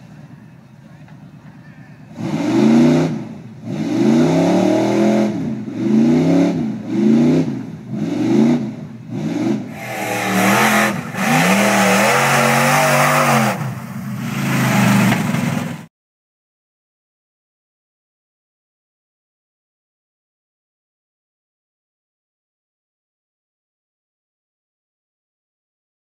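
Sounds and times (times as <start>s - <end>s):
truck engine revving: 2.1s - 15.9s
loud rushing noise: 9.6s - 15.8s.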